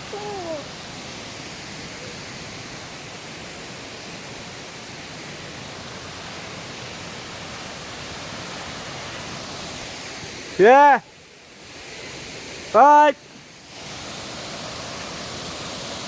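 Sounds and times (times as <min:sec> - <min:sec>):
river and waterfall rushing: 0:00.0 - 0:16.0.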